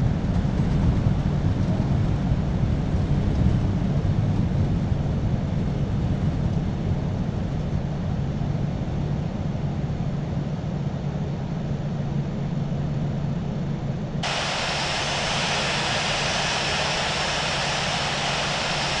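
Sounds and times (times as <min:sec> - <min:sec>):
jet engine cabin rumble: 0:14.2 - 0:19.0
loud rushing hiss: 0:14.2 - 0:19.0.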